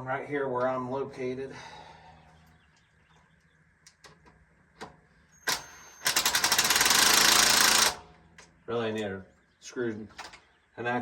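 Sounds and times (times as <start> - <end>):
impact driver hammering: 5.5 - 8.1.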